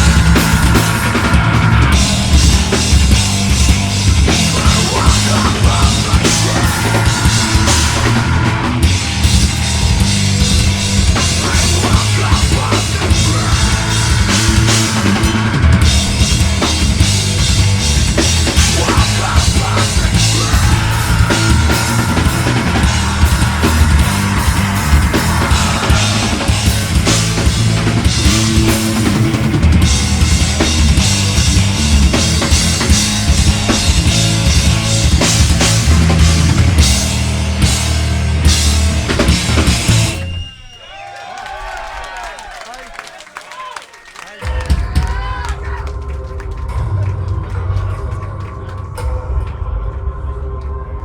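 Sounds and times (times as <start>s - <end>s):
heavy metal band playing live: 0.0s - 40.5s
drum kit pounding fast hits: 0.0s - 43.1s, 44.2s - 51.0s.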